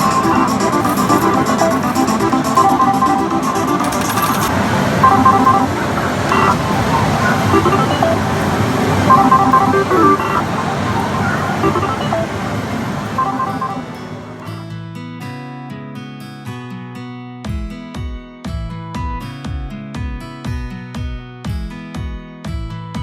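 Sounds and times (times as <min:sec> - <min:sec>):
slot machine electronic jingles: 0:00.0 - 0:14.3
gaming hall din: 0:00.0 - 0:14.5.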